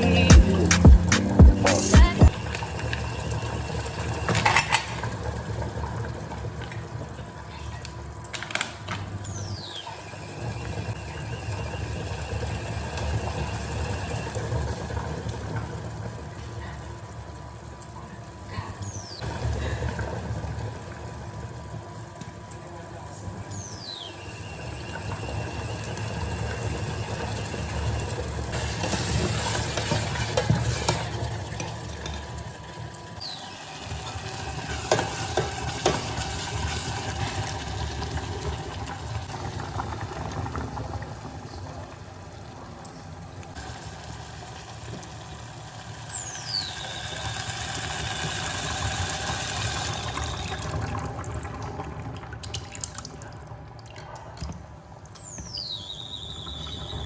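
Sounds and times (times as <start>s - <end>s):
food sizzling in a frying pan: 33.2s - 40.2s, 43.5s - 51.0s.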